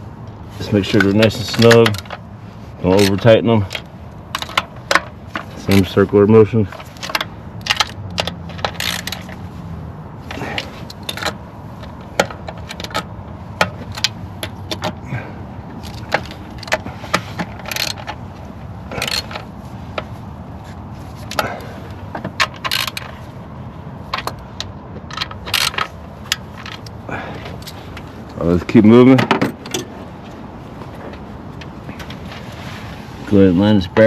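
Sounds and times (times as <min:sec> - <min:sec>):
hand ratchet clicking: 0:01.0 - 0:02.2, 0:02.9 - 0:06.0, 0:06.8 - 0:09.4, 0:15.8 - 0:18.2, 0:18.9 - 0:19.4.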